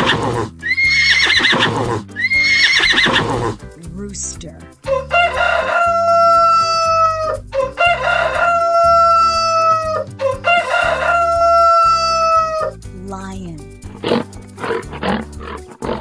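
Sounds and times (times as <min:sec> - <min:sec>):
rooster crowing: 0:04.8 - 0:12.7.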